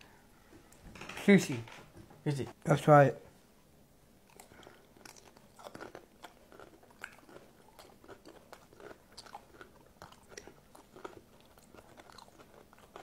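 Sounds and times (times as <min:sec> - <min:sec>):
person chewing crunchy food: 0:04.2 - 0:13.0.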